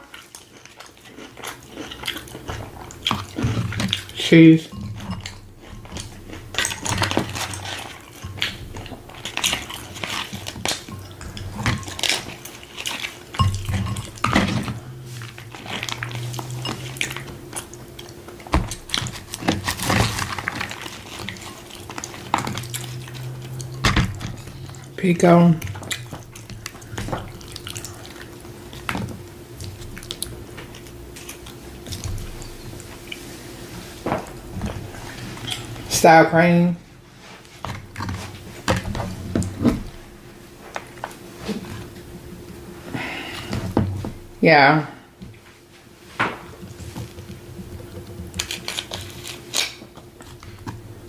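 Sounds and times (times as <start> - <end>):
spoon clinking on dishes: 4.6 - 5.4, 13.3 - 14.5.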